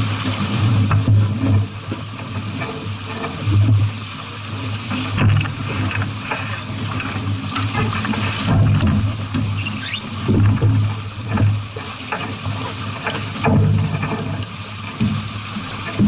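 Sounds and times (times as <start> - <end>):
boat rushing through water: 0.0 - 16.0
small knocks: 4.9 - 16.0.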